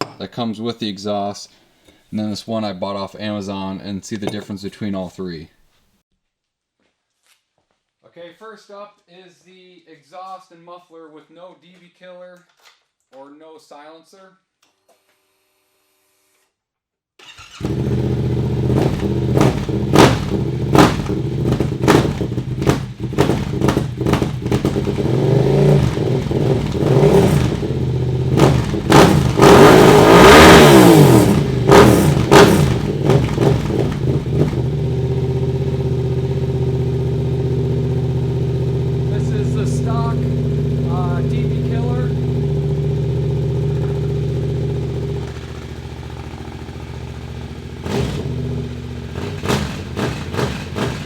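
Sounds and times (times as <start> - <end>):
motorcycle engine revving and idling: 17.4 - 51.0.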